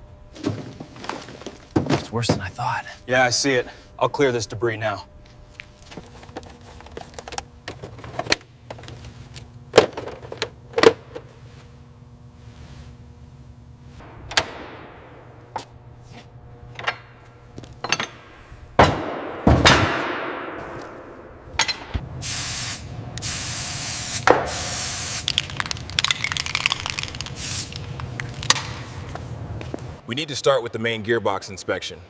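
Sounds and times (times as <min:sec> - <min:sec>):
hissing spray bursts: 0:22.2 - 0:25.3, 0:27.3 - 0:27.9
small clicks and rattles: 0:25.3 - 0:28.5.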